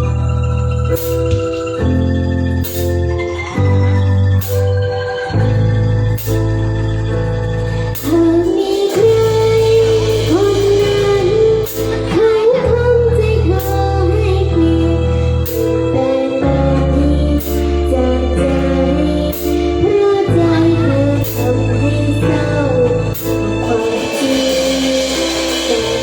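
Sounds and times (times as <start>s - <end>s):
bass: 0.0s - 26.0s
electric keyboard: 0.0s - 26.0s
cymbal struck: 8.0s - 12.4s, 21.2s - 26.0s
woman singing: 8.1s - 26.0s.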